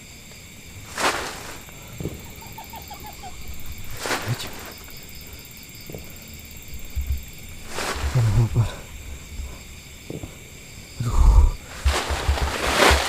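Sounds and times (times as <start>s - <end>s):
insects trilling: 0.0s - 13.0s
brushing rustle: 0.6s - 10.4s, 11.6s - 13.0s
animal falling call notes: 2.0s - 4.3s.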